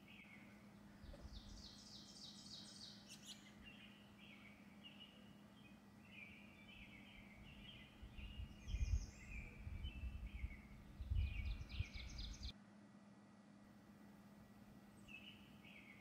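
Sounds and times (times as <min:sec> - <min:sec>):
small birds chirping: 0:00.0 - 0:12.6, 0:14.9 - 0:16.0.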